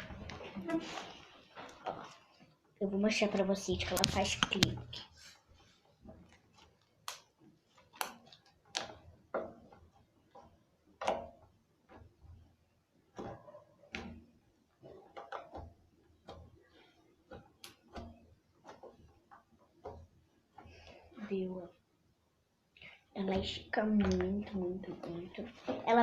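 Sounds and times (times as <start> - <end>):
slime clicking and popping: 7.0 - 9.1.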